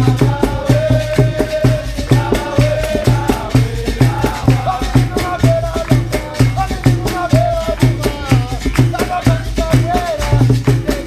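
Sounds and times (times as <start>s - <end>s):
low drumbeat: 0.0s - 11.0s.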